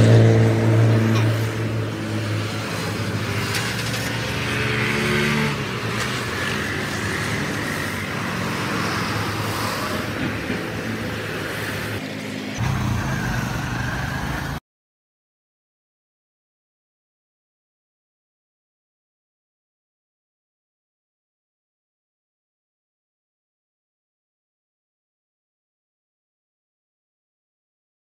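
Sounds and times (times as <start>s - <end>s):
car engine idling: 12.6s - 14.6s.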